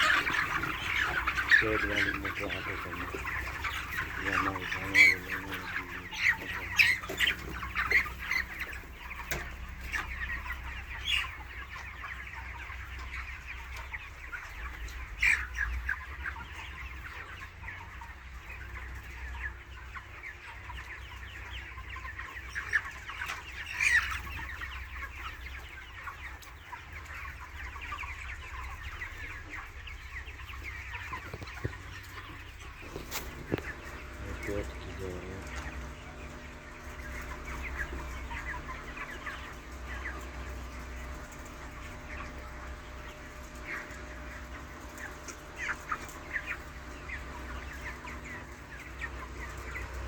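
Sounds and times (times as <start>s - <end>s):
low machine hum: 0.0s - 16.2s, 32.5s - 50.0s
chickens clucking and calling: 0.0s - 50.0s.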